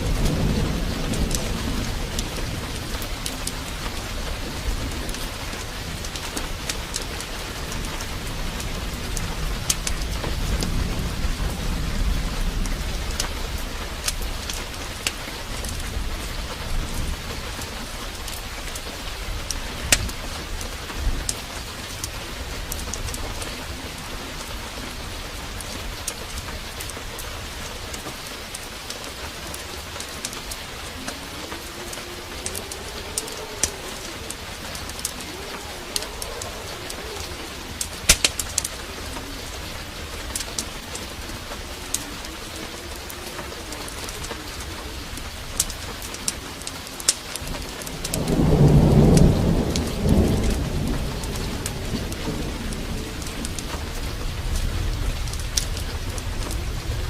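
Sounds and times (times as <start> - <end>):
low rumble of thunder: 0.0 - 57.0
steady downpour of rain: 0.0 - 57.0
low wavering cooing call: 28.6 - 47.9
sharp clicks: 38.1 - 38.7.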